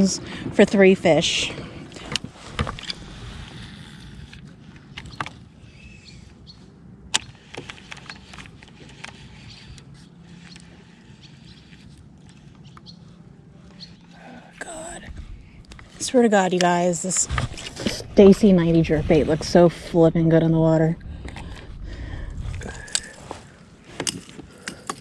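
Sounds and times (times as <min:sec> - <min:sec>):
knocks and clicks of gear: 0:07.1 - 0:10.8, 0:22.8 - 0:25.0.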